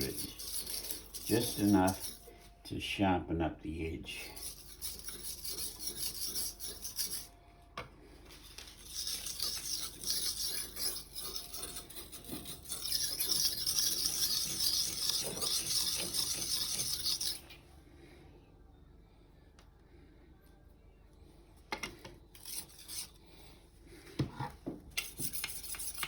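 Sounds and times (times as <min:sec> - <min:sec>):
knife scraping on sharpening stone: 0:00.0 - 0:02.3, 0:04.2 - 0:07.3, 0:08.4 - 0:17.5, 0:22.3 - 0:23.2, 0:25.0 - 0:26.0.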